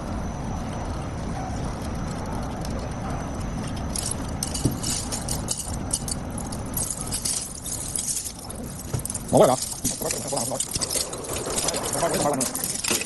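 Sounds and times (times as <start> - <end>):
machinery rumbling: 0.0 - 13.0
clinks and rattles: 3.6 - 13.0.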